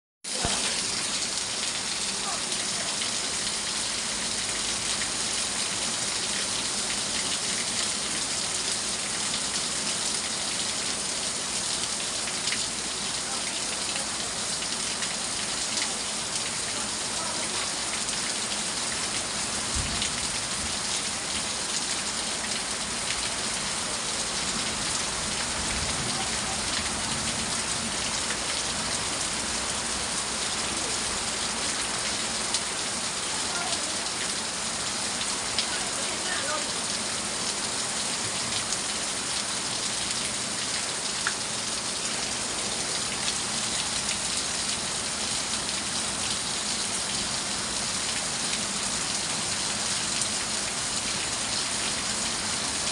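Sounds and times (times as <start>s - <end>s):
steady rain falling: 0.2s - 52.9s.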